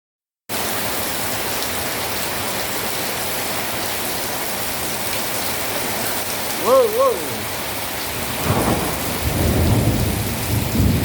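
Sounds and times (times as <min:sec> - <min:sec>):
heavy rain pouring: 0:00.5 - 0:11.0.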